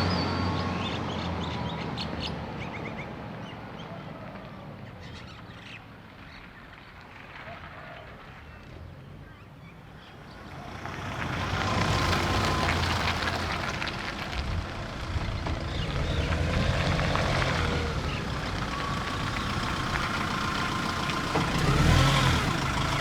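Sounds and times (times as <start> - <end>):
diesel engine running: 10.5 - 23.0.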